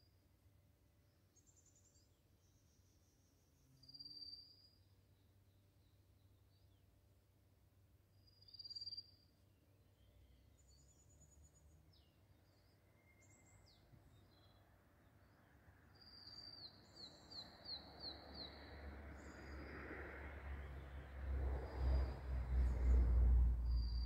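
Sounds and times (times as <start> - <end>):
small birds chirping: 8.2 - 19.7, 20.6 - 24.0.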